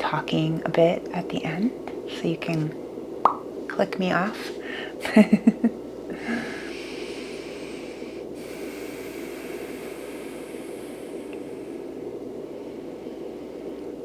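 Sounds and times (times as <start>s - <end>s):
steady hiss: 0.9s - 14.0s
soft breath-like sound: 6.2s - 13.8s.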